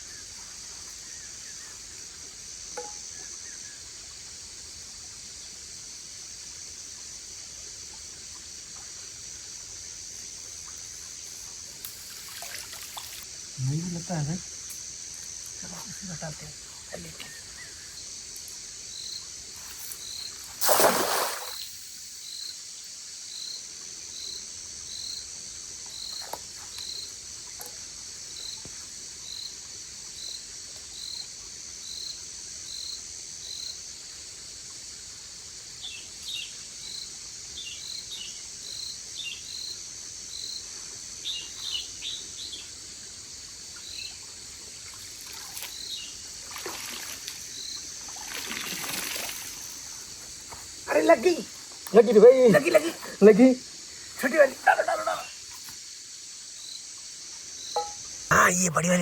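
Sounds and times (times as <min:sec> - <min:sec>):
high insect drone: 0:00.0 - 0:59.0
short high insect chirp: 0:10.4 - 0:16.3, 0:17.0 - 0:23.6, 0:45.2 - 0:52.1.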